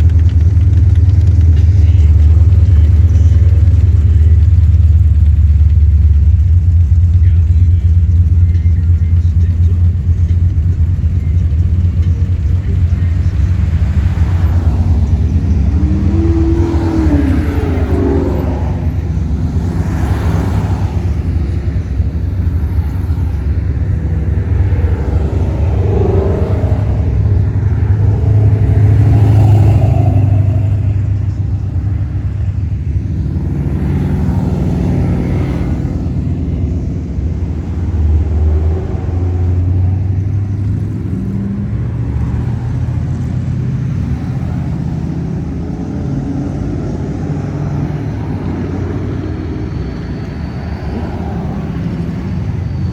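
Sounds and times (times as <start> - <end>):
car engines rumbling past: 0.0 - 52.9.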